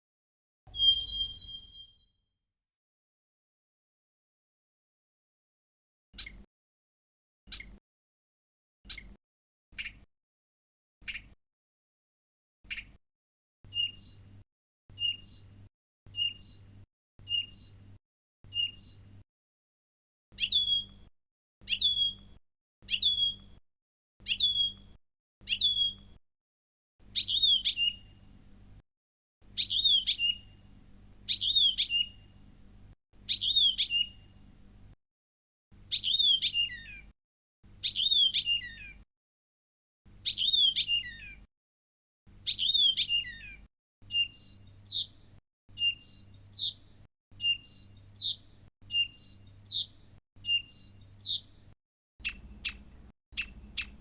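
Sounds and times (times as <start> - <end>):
reed warbler song: 7.5 - 7.8, 27.2 - 28.2, 29.6 - 30.5, 31.3 - 32.4, 33.2 - 34.4, 44.1 - 45.2, 45.8 - 46.8, 47.4 - 51.6, 52.2 - 54.0.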